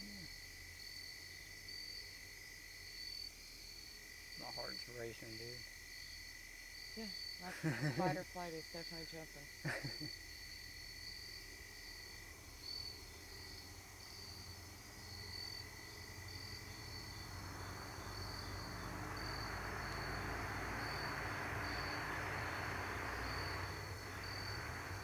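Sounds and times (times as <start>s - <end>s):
crickets chirping: 0.0s - 25.0s
truck passing: 13.1s - 25.0s.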